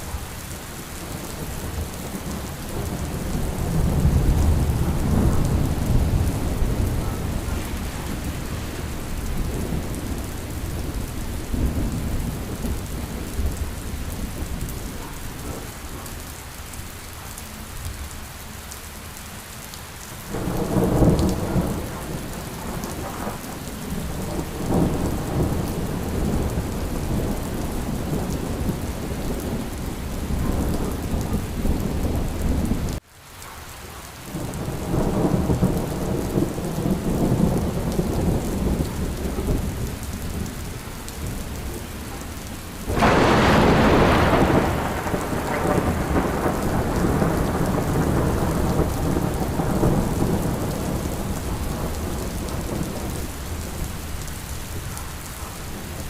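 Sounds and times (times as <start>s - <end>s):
heavy rain: 0.0s - 56.0s
rolling thunder: 0.8s - 16.1s, 20.3s - 33.0s, 34.4s - 56.0s
loud thunderclap: 1.6s - 13.6s, 42.8s - 53.8s.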